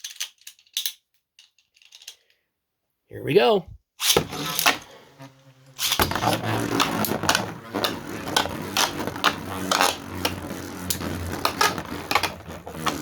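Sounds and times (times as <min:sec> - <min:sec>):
spinning tops clicking and scraping: 0:04.0 - 0:13.0
spinning tops whirring: 0:04.0 - 0:13.0.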